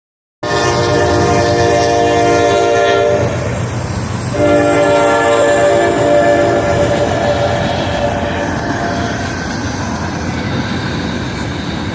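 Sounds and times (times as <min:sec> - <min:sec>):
locomotive horn blasts: 0:00.4 - 0:03.4, 0:04.3 - 0:09.4
train rumbling past: 0:00.4 - 0:11.9.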